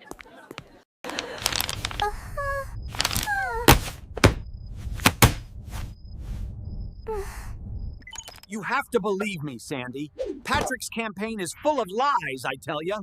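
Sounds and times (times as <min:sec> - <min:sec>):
low steady rumble: 0:01.9 - 0:08.0
sharp thuds: 0:03.0 - 0:05.9.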